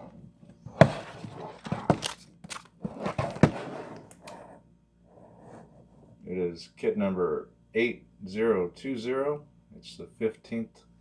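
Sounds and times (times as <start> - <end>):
cardboard box rustling and knocking: 0.6 - 4.2.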